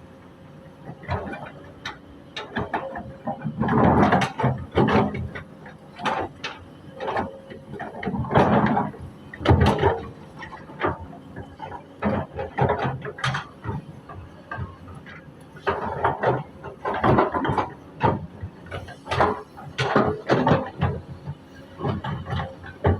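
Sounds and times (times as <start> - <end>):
excavator bucket scraping soil: 2.5 - 21.1.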